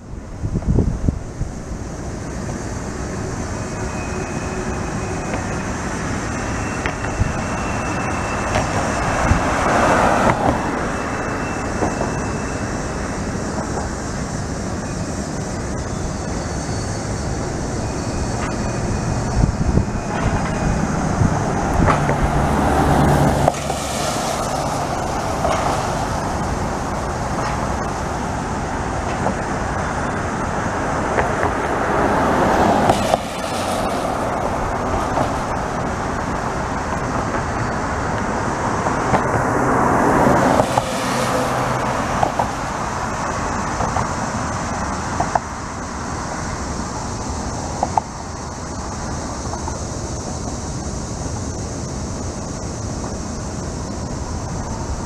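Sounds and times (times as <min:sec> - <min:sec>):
train rolling past: 0:00.0 - 0:55.0
faint high wheel squeals: 0:01.6 - 0:55.0.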